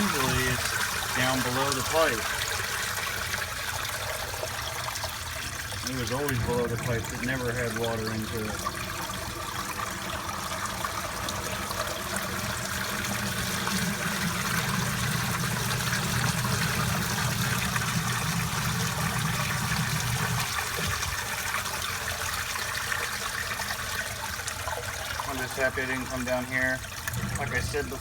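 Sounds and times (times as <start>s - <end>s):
water trickling and flowing: 0.0s - 28.0s
low motor hum: 5.8s - 21.2s.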